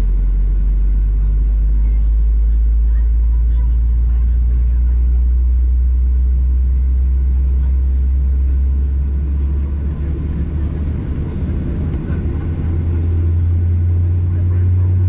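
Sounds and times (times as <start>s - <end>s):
aircraft cabin engine rumble: 0.0s - 15.0s.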